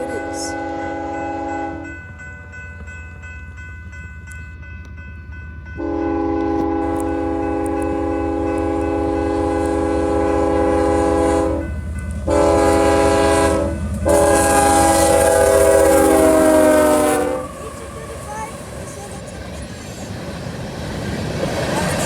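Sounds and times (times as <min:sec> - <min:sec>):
locomotive horn blasts: 0:00.0 - 0:02.0, 0:05.8 - 0:17.8
low train rumble: 0:00.0 - 0:22.0.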